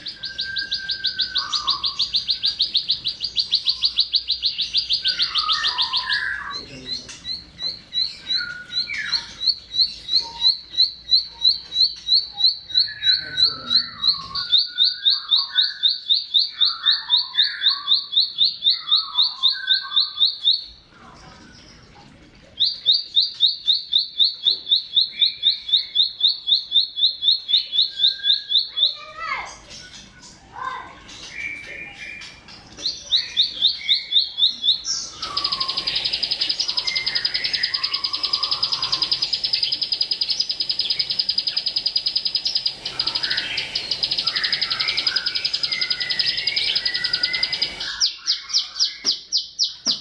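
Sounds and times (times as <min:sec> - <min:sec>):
bird singing rapid high notes: 0:33.2 - 0:49.8.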